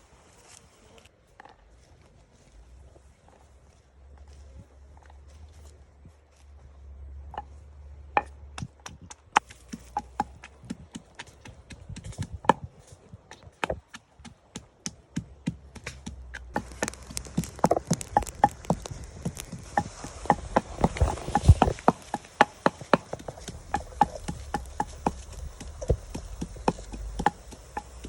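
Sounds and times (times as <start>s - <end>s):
sharp knocks and taps: 8.2s - 12.7s, 13.3s - 28.0s
steady hiss: 16.4s - 28.0s.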